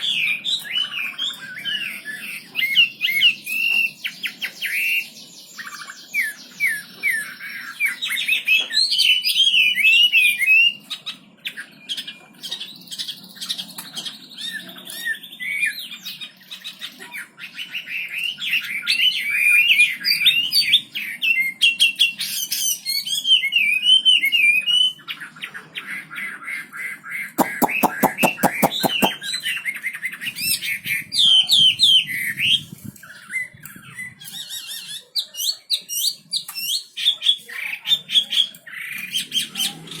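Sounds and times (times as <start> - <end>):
bird harsh rattle: 27.4 - 29.2
songbird singing chattering phrases: 27.4 - 29.2.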